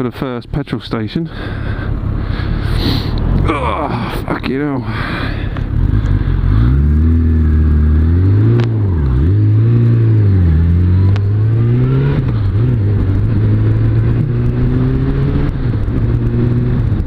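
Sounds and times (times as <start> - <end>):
motorcycle engine revving through gears: 5.6 - 17.0.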